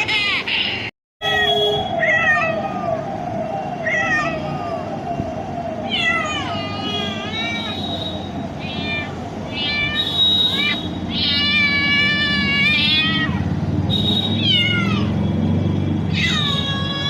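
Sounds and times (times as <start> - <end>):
cat meowing: 2.0 - 2.9, 3.8 - 4.7, 5.9 - 7.8, 8.6 - 13.5, 14.4 - 15.1, 16.1 - 17.0.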